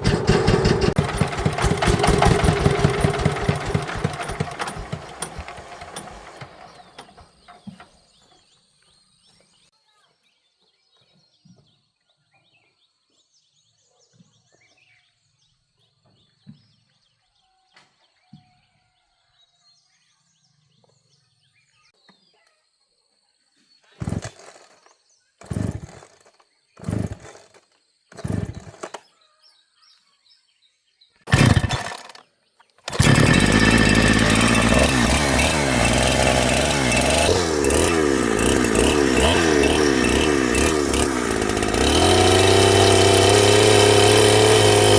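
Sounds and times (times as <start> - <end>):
small engine starting and running: 0.0 - 8.2, 24.0 - 29.1, 31.3 - 44.9
faint birds chirping: 2.4 - 41.8.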